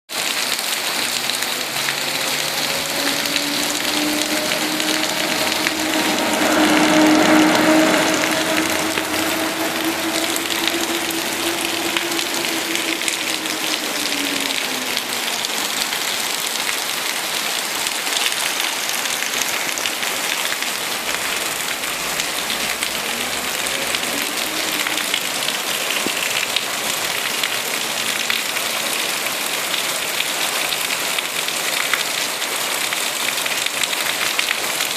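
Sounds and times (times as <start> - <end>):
rain pouring: 0.1 - 34.9
low droning hum: 0.9 - 16.4, 20.8 - 27.3.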